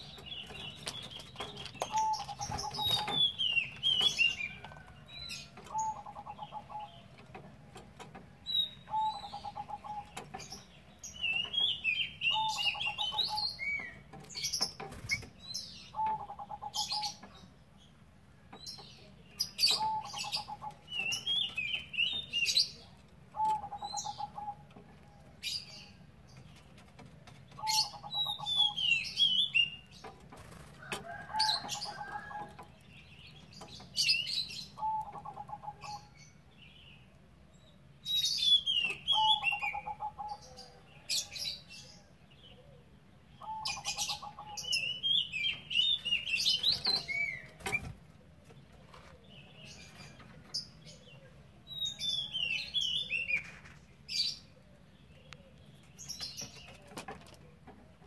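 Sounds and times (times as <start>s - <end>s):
birds twittering: 0.0s - 58.0s.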